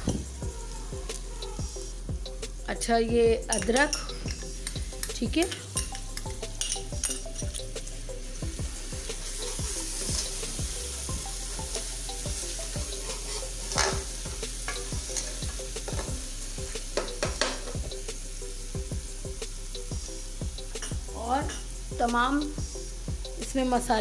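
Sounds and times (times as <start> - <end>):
onions sizzling in oil: 0.0 - 24.0
metal spoon scraping and knocking pot: 3.5 - 7.6, 12.9 - 14.1.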